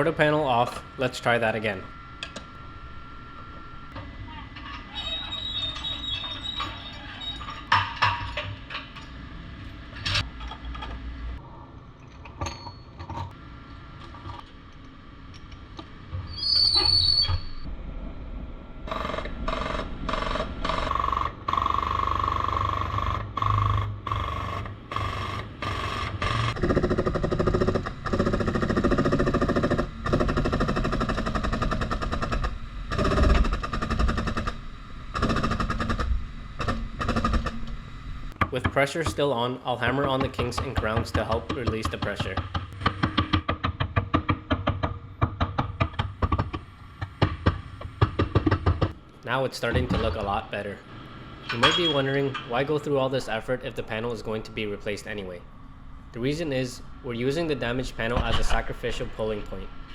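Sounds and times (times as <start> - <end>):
metal clanks and knocks: 5.7 - 9.2, 51.4 - 52.7
rapid mechanical chatter: 18.9 - 37.7.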